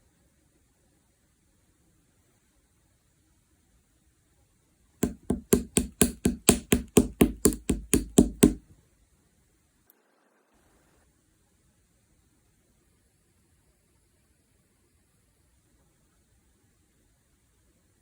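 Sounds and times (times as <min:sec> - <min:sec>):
sharp knocks: 0:05.0 - 0:08.6.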